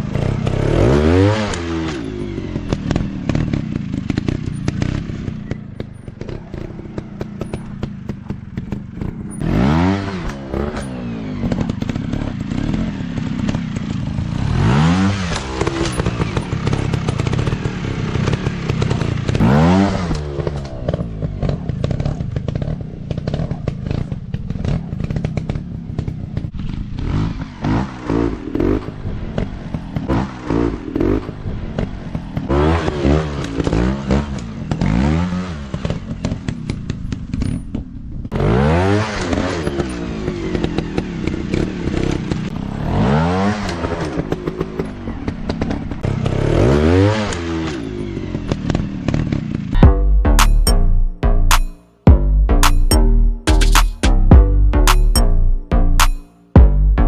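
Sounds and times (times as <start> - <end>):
dirt bike engines revving: 0.0 - 36.5
clatter: 0.0 - 50.8.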